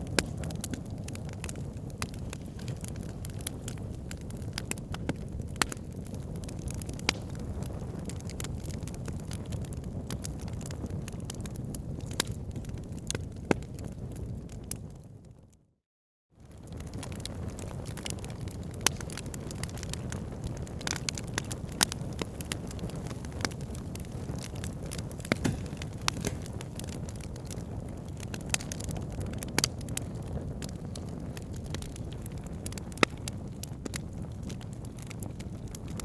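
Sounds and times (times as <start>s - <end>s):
wood fire crackling: 0.0s - 14.9s, 16.4s - 36.0s.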